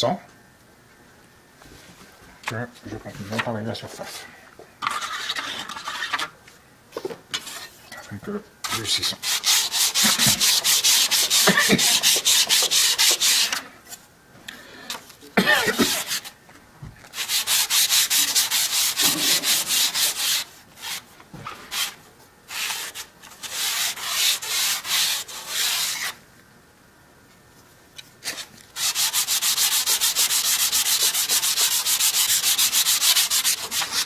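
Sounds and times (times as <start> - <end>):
blade rasping on abrasive paper: 4.8 - 6.3, 8.7 - 13.6, 15.8 - 16.3, 17.1 - 21.1, 21.7 - 26.2, 28.2 - 34.0.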